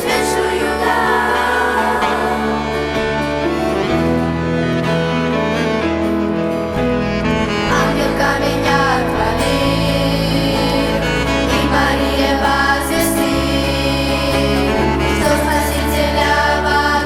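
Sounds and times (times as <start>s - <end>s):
voices singing a church song: 0.0s - 3.4s, 7.6s - 17.0s
instrumental accompaniment: 0.0s - 17.0s.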